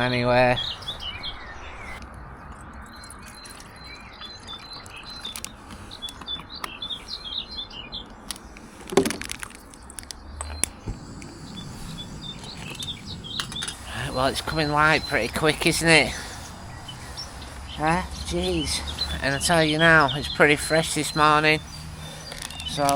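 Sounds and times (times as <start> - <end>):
small birds chirping: 0.0 - 22.9.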